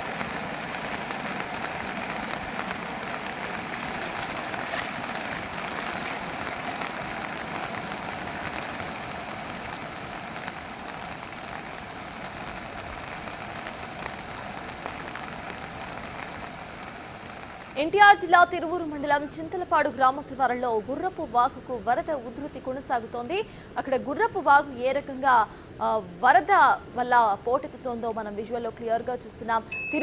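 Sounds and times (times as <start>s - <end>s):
floodwater rushing in stream: 0.0s - 17.8s.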